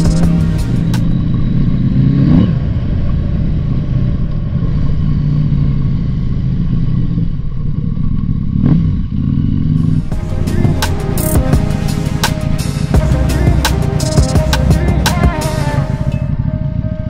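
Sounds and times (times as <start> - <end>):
rushing noise: 0.0 - 2.0, 9.8 - 16.9.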